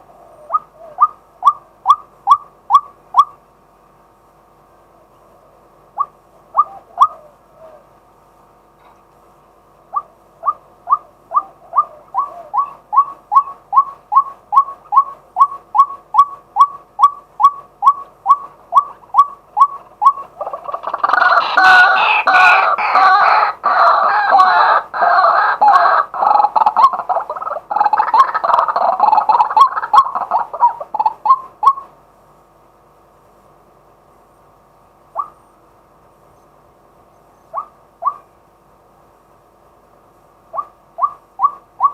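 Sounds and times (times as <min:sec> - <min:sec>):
waterhen calling: 0:00.0 - 0:03.4, 0:06.0 - 0:07.8, 0:09.9 - 0:31.9, 0:37.5 - 0:38.3, 0:40.5 - 0:41.9.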